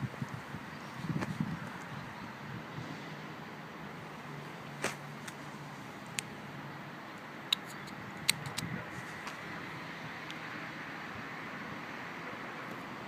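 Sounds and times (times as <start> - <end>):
road traffic hum: 0.0 - 13.0
sharp clicks: 7.5 - 8.7.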